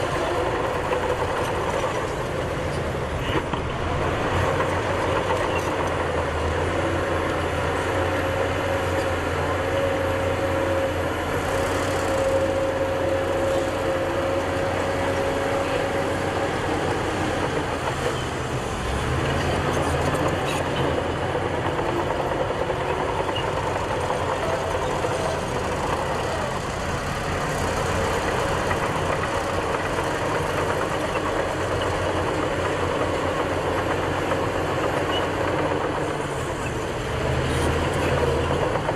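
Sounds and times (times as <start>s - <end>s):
diesel machinery running: 0.0s - 38.9s.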